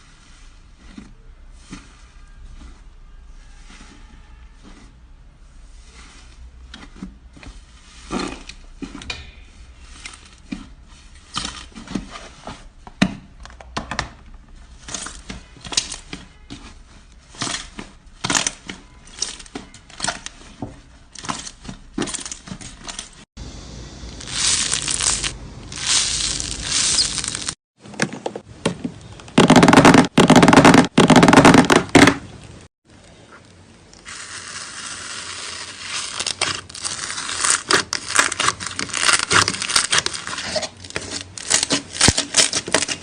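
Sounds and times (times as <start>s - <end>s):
slime squeezed by hand: 24.2s - 27.6s.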